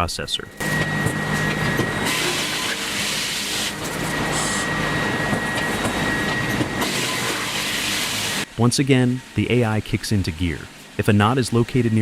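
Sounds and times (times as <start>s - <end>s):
sawmill machinery clattering: 0.6s - 8.4s.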